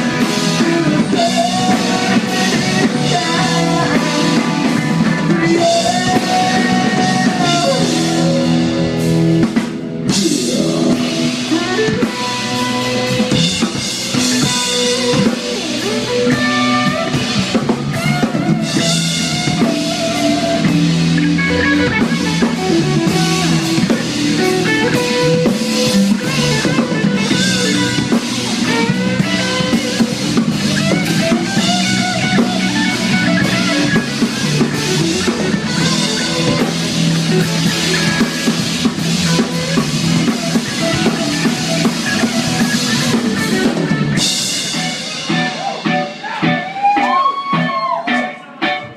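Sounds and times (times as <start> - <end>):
drum kit beat: 0.0 - 48.9
guitar: 0.0 - 48.9
live rock band: 0.0 - 48.9.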